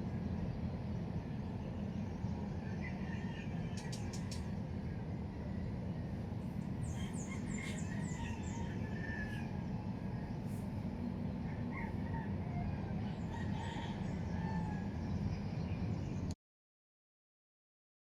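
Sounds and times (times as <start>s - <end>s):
low background rumble: 0.0s - 16.4s
distant chickens calling: 1.4s - 16.0s
birds chirping: 6.0s - 12.0s.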